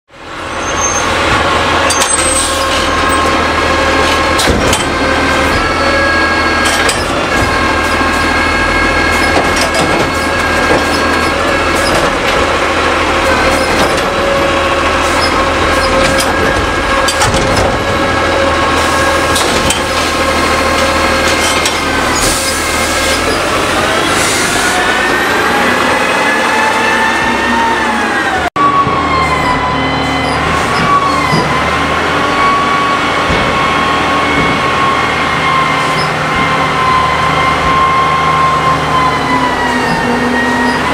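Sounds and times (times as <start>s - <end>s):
garbage truck mechanical whine: 0.1s - 40.9s
knocks and clunks: 4.0s - 5.8s, 6.6s - 8.0s, 9.1s - 14.4s, 15.1s - 18.2s, 19.2s - 23.5s, 30.2s - 31.8s, 33.0s - 35.3s.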